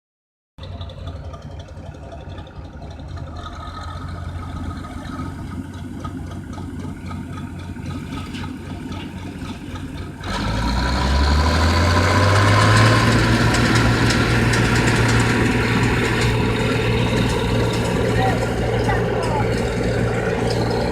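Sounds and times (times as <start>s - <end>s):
diesel engine idling and revving: 0.6s - 20.9s.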